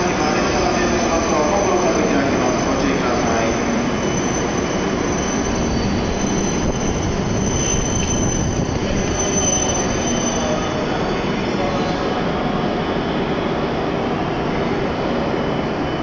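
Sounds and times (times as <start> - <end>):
train rumbling: 0.0 - 16.0
brake and wheel squeal: 2.0 - 11.2.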